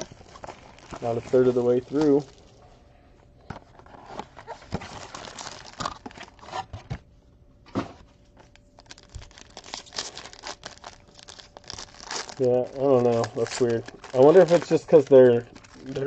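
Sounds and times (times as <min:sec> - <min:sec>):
wrapping being torn and crinkled: 0:00.0 - 0:02.6, 0:04.0 - 0:06.5, 0:08.4 - 0:16.0.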